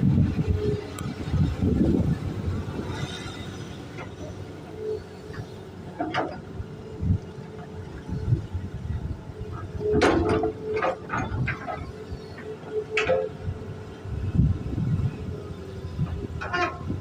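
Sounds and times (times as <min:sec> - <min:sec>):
excavator engine hum: 0:00.0 - 0:17.0
metal knocks and clanks: 0:09.9 - 0:11.9.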